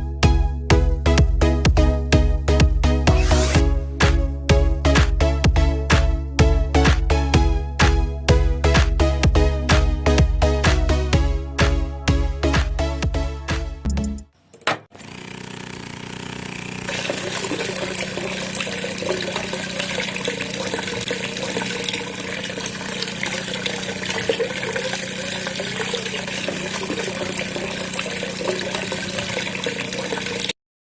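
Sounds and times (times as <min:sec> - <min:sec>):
small electric pump motor hum: 0:14.9 - 0:30.6
water splashing and pouring: 0:16.9 - 0:30.6.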